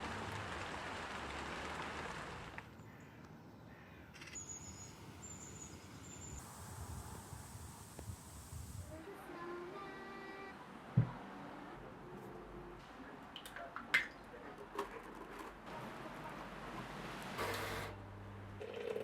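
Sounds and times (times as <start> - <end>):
soft rushing outdoor background: 0.0 - 18.6
crows cawing: 2.9 - 4.1.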